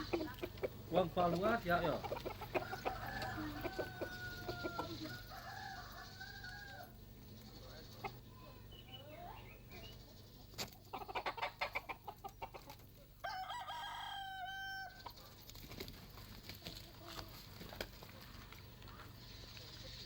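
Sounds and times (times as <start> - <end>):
rooster crowing: 2.5 - 7.0, 13.2 - 15.2.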